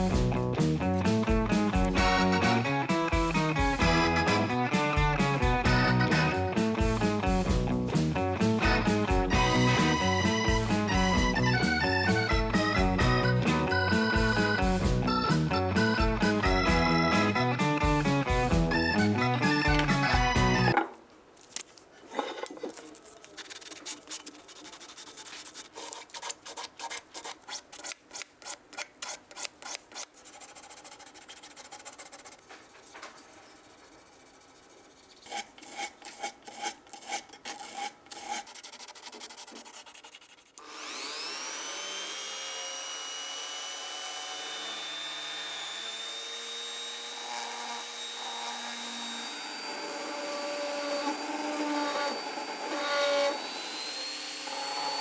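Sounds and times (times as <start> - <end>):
rasping hand filing strokes: 0.6 - 3.5, 5.8 - 16.4, 24.4 - 41.3
small electric motor whine: 40.6 - 55.0.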